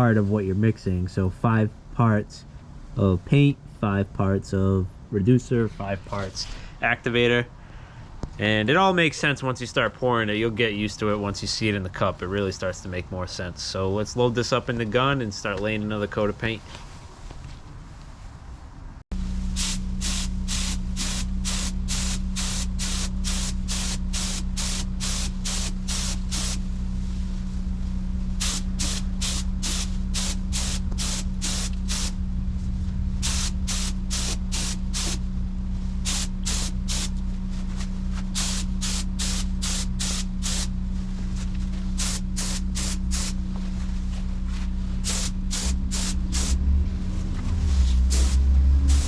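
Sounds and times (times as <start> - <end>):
steady low hum: 0.0 - 49.0
spray gun hissing bursts: 19.4 - 26.7, 28.4 - 32.2, 33.2 - 35.3, 36.0 - 37.2, 38.3 - 40.7, 41.9 - 43.4, 45.0 - 46.6, 47.8 - 49.0.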